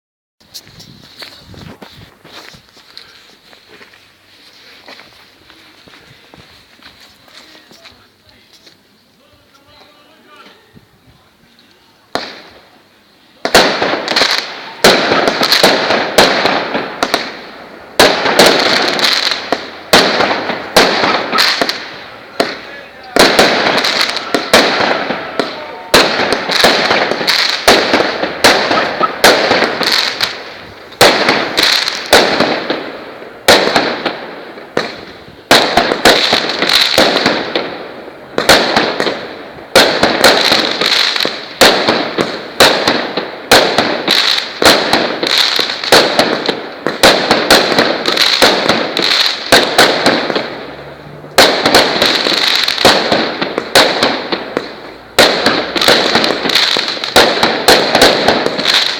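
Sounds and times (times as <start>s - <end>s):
fireworks hissing crackle: 0.4s - 58.9s
fireworks bangs: 11.8s - 58.9s.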